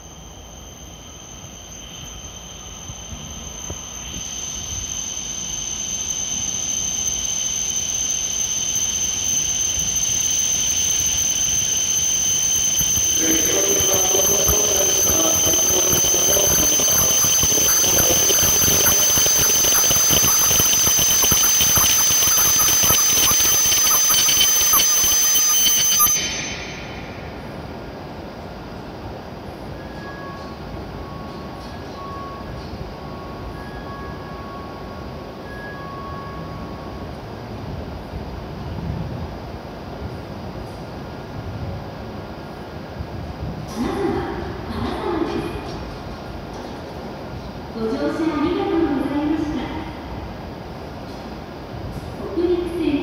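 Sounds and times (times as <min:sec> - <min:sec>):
high-pitched train squeal: 0:00.0 - 0:27.9, 0:29.6 - 0:37.2.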